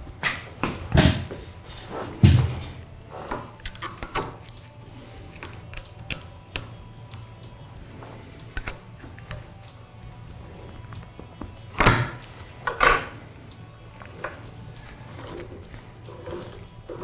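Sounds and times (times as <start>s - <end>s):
metal parts clicking and knocking: 0.9s - 7.3s, 8.5s - 9.6s, 10.8s - 13.3s.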